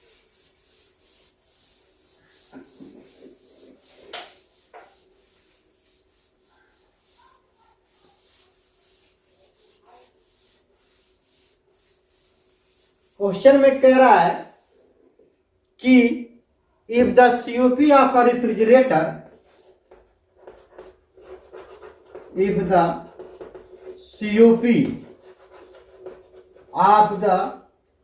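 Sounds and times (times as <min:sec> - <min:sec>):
short scrapes and taps: 0:02.4 - 0:05.0, 0:19.3 - 0:24.2, 0:24.8 - 0:26.7
pen scratching while writing: 0:19.4 - 0:24.0, 0:24.8 - 0:26.7.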